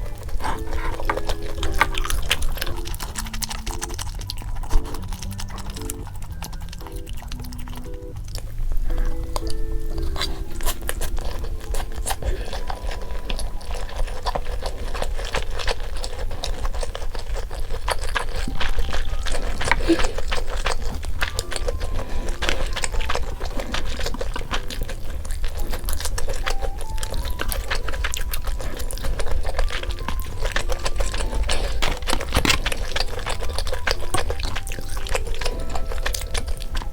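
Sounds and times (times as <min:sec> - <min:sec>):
light background music: 0:00.0 - 0:36.9
sharp clicks and crackles: 0:22.4 - 0:36.9.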